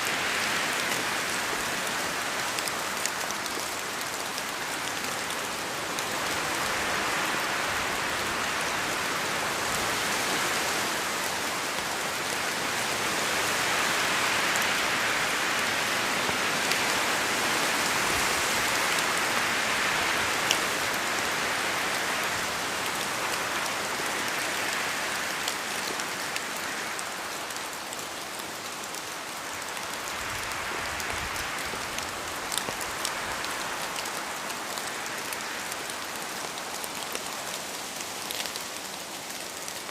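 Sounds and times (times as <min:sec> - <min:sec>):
rain falling in a forest: 0:00.0 - 0:39.9.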